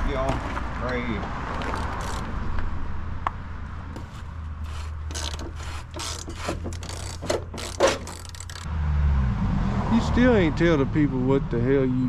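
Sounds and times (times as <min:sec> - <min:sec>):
ratchet wrench clicking: 0:01.6 - 0:02.3, 0:04.7 - 0:08.7.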